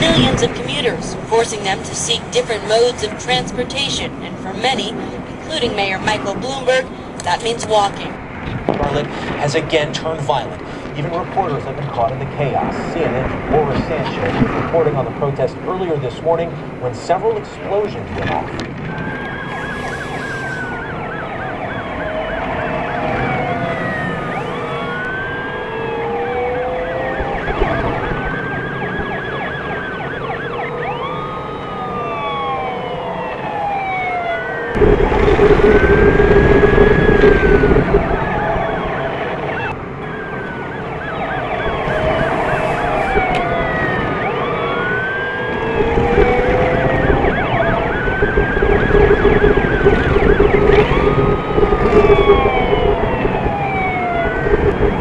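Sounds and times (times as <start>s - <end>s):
sirens wailing: 0.0s - 55.0s
loud low drone: 34.7s - 39.4s, 41.6s - 55.0s.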